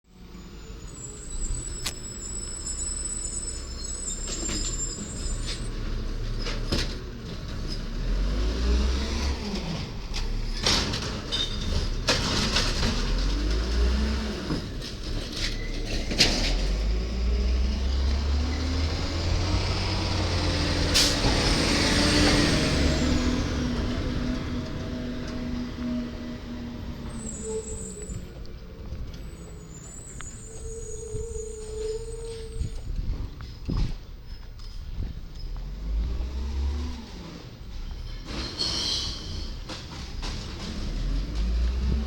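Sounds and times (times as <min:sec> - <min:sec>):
garbage truck engine revving: 0:07.4 - 0:27.4, 0:35.7 - 0:38.4
bangs and clunks: 0:09.8 - 0:17.0.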